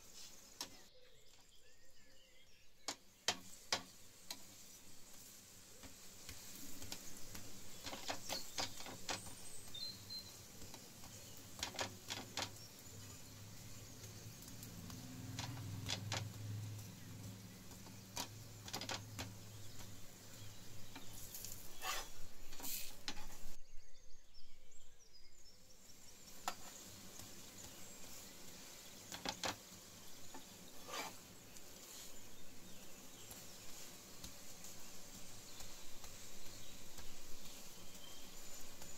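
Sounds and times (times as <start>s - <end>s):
bread frying in oil: 0.0s - 1.3s, 2.7s - 23.6s, 25.6s - 38.9s
spatula scraping and clinking on pan: 21.0s - 23.6s, 30.3s - 31.3s.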